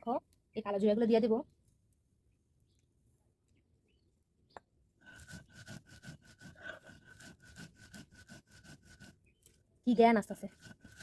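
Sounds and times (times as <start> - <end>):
spatula scraping seeds in a pan: 5.1 - 11.0.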